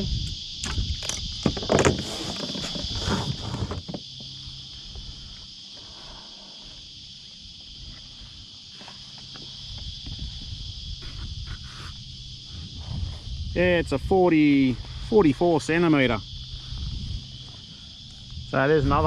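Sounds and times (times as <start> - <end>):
insects chirring: 0.0 - 19.0
knocks and rustles: 0.6 - 4.4.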